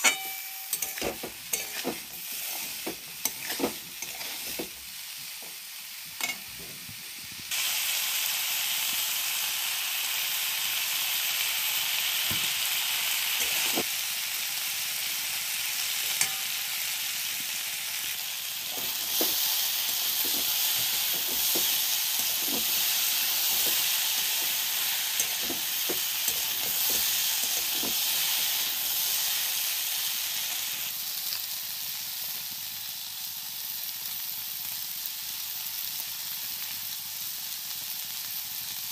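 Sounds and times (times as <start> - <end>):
spatula scraping a wok: 0.0 - 5.0, 13.4 - 13.8, 18.6 - 29.7
food sizzling in hot oil: 0.0 - 38.9.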